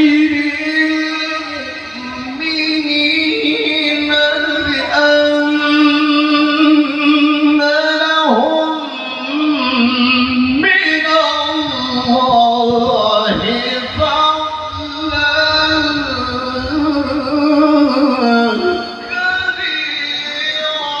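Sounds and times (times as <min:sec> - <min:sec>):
man chanting a long ornamented note: 0:00.0 - 0:21.0.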